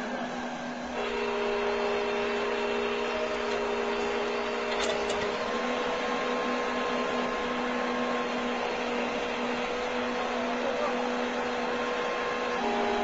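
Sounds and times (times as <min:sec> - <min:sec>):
machine running with steady hum: 0:00.0 - 0:13.0.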